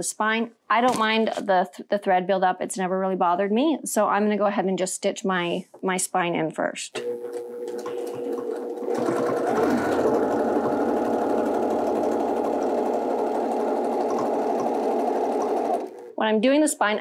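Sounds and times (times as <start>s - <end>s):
sewing machine stitching: 7.0s - 16.2s.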